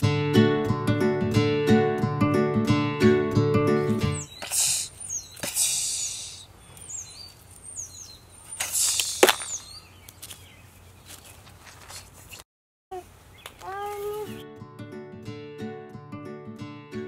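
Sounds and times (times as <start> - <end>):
songbird chirping: 3.8 - 14.6
rustling of gravel pebbles: 8.5 - 12.4
pebbles clacking: 8.9 - 10.4.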